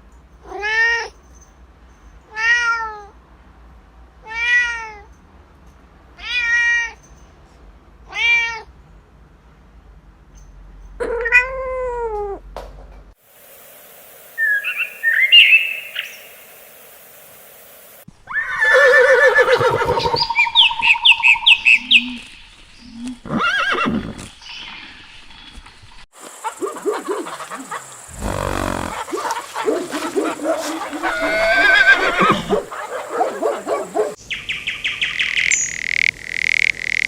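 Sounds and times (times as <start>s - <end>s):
cat meowing: 11.0s - 12.4s, 30.9s - 32.7s
high chirping calls: 14.4s - 16.5s, 19.4s - 22.9s, 26.4s - 37.0s
animal calls: 18.3s - 22.3s, 26.2s - 34.2s.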